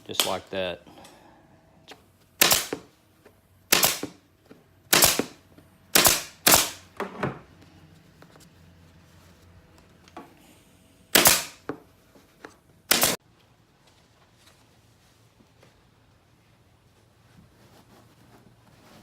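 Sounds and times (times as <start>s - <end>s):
staple gun firing: 2.4s - 2.8s, 3.7s - 4.2s, 4.9s - 5.4s, 6.0s - 6.8s, 11.2s - 11.6s, 12.9s - 13.2s.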